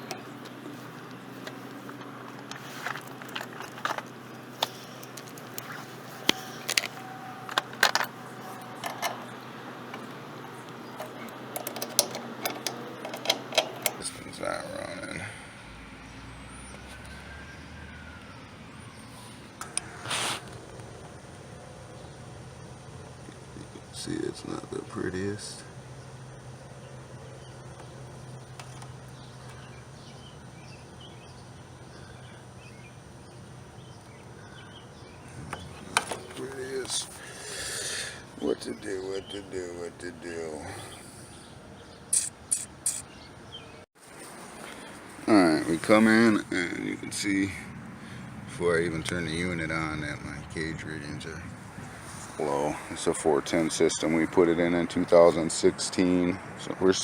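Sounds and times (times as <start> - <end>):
sharp clicks and clatter: 0.0 - 14.1
steady low hum: 0.0 - 15.8.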